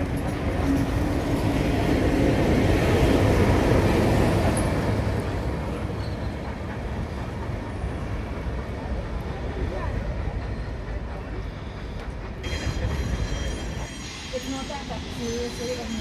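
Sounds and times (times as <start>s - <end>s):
passenger train rolling past: 0.0s - 16.0s.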